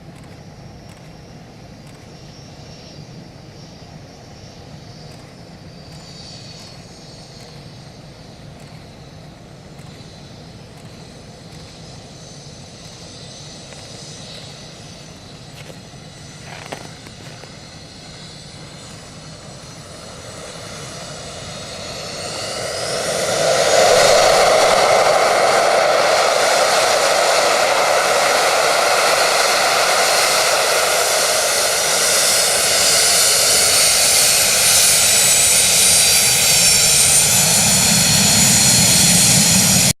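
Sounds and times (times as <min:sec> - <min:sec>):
jet engines whining: 0:00.0 - 0:40.0.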